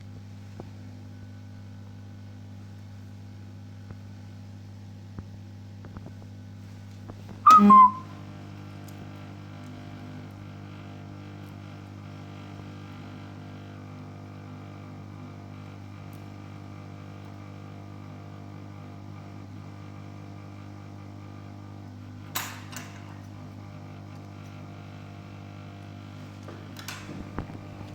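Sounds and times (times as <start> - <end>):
electrical hum: 5.9 - 13.2, 21.8 - 27.9.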